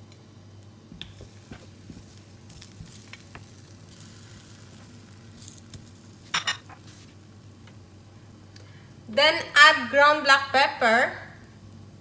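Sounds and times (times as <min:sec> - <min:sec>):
potato slices sizzling in oil: 0:00.3 - 0:08.9.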